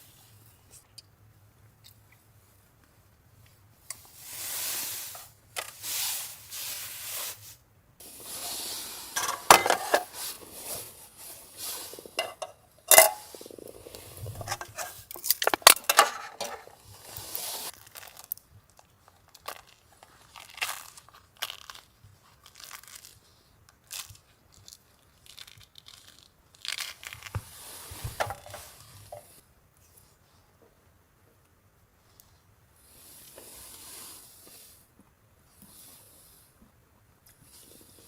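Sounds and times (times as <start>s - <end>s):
cookware and utensils clinking: 9.2s - 10.3s, 12.1s - 13.4s, 14.4s - 16.7s.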